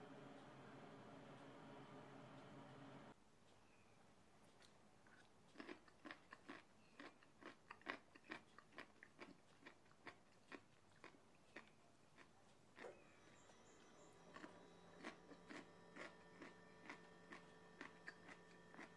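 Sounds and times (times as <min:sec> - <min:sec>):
person chewing crunchy food: 0:04.6 - 0:13.5, 0:14.2 - 0:18.9.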